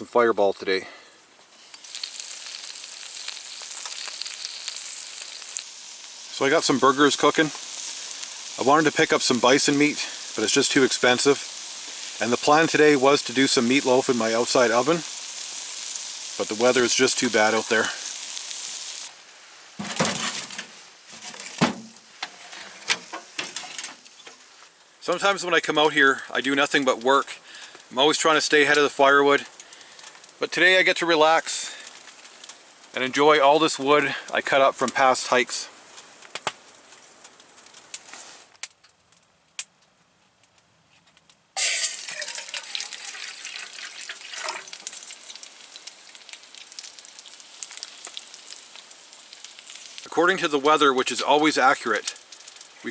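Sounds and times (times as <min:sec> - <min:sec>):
faint crackles: 0:00.1 - 0:52.9
burgers sizzling in a pan: 0:00.7 - 0:38.5, 0:41.6 - 0:52.9
knocks and clunks: 0:19.8 - 0:24.0.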